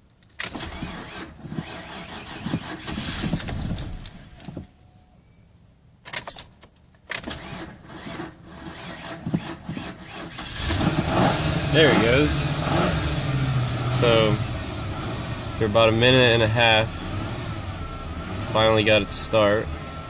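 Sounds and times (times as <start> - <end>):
car engine cranking on starter: 0.4 - 4.5, 7.1 - 20.0.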